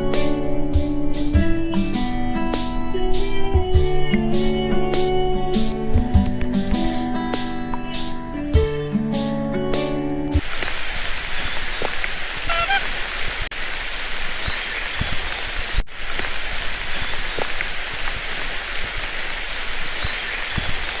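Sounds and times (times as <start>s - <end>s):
dense hiss with sharp pops: 0.0s - 21.0s
brief pitched call: 12.4s - 13.0s.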